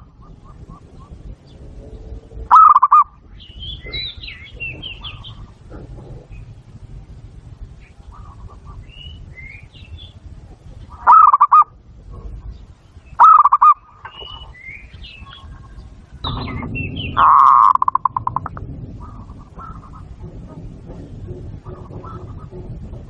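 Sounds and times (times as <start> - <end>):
dove cooing: 0.0 - 12.5, 13.1 - 23.0
small birds chirping: 0.0 - 23.0.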